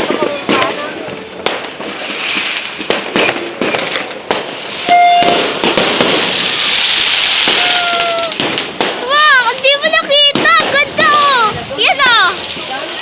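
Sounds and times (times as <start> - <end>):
dense fireworks crackling: 0.0 - 13.0
firecrackers banging: 0.0 - 13.0.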